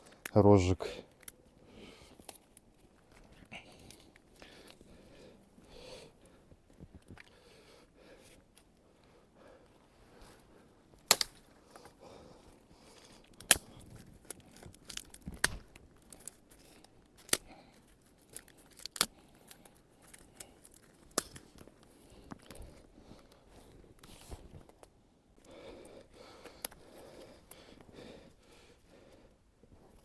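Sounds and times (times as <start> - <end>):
rustling twigs: 10.1 - 24.9
twigs snapping: 11.0 - 12.0, 12.9 - 22.7.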